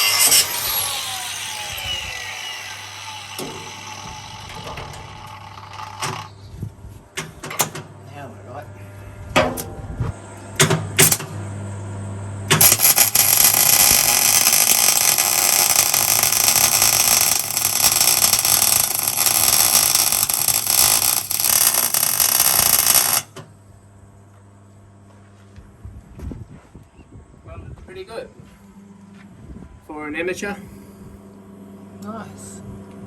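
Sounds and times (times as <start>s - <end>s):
welding arc crackling: 0.0s - 6.3s, 11.0s - 11.4s, 12.5s - 23.4s
low steady hum: 3.6s - 18.6s.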